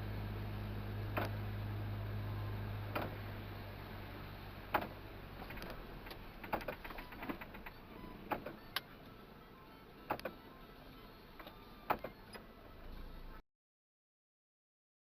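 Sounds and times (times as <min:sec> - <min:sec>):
low steady hum: 0:00.0 - 0:13.4
sharp clicks and knocks: 0:02.9 - 0:03.2, 0:04.7 - 0:08.9, 0:10.1 - 0:10.4, 0:11.4 - 0:12.4.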